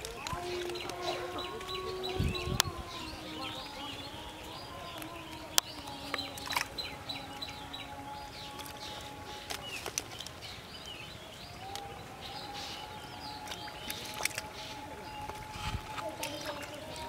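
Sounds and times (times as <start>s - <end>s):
faint steady drone: 0.0s - 17.0s
small birds chirping: 0.0s - 17.0s.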